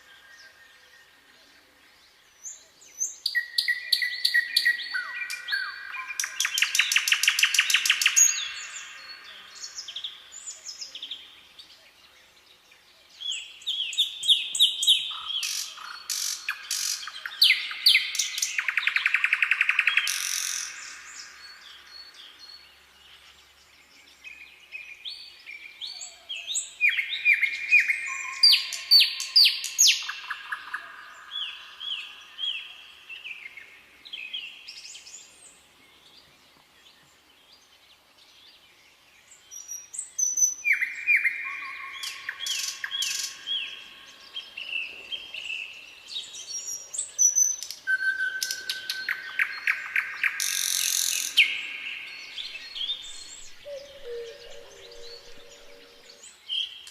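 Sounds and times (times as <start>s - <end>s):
songbirds singing: 0.0s - 56.9s.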